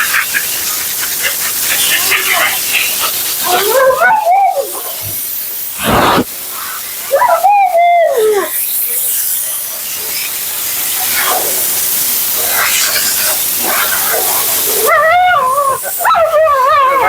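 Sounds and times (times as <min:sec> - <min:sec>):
steady hiss: 0:00.0 - 0:17.0
dog howling woo-woo calls: 0:03.6 - 0:04.9, 0:07.1 - 0:08.5, 0:14.8 - 0:17.0
loud rushing burst: 0:05.8 - 0:06.3.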